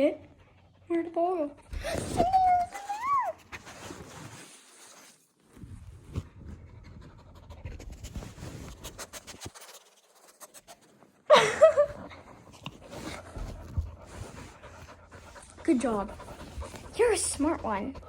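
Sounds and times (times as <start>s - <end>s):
dog panting and sniffing: 0.0s - 5.2s, 5.8s - 18.0s
scratching and rustling at a pillow: 1.7s - 18.0s
high-pitched vocal cry: 1.8s - 3.4s.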